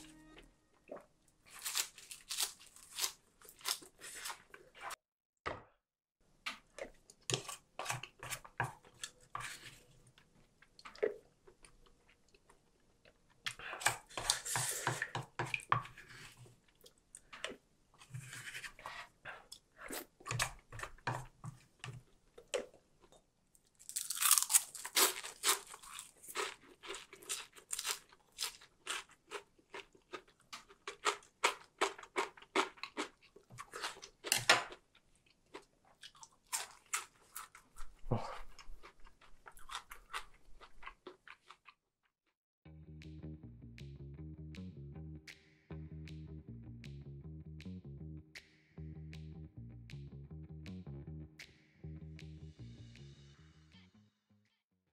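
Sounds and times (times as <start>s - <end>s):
crisp crunching chews: 1.5s - 4.7s, 22.4s - 41.8s.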